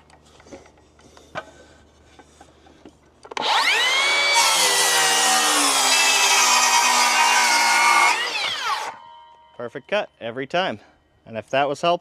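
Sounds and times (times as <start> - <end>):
power saw motor whining: 3.3 - 9.4
saw blade cutting wood: 3.4 - 9.1.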